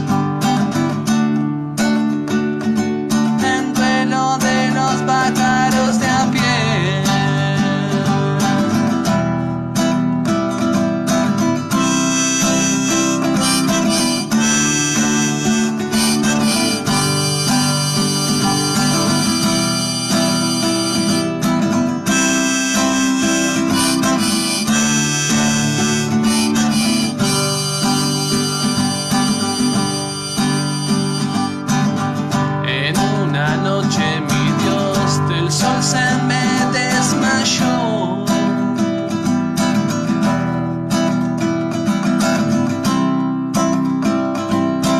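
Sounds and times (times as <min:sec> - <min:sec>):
acoustic guitar: 0:00.0 - 0:44.9
harmonica melody: 0:11.7 - 0:32.5, 0:34.4 - 0:38.1.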